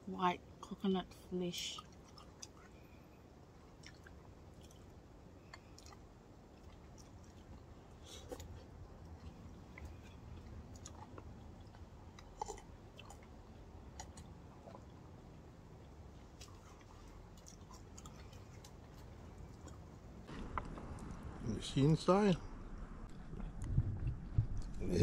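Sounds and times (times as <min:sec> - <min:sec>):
faint chewing: 0:01.6 - 0:21.2
steady low rumble: 0:07.5 - 0:25.0.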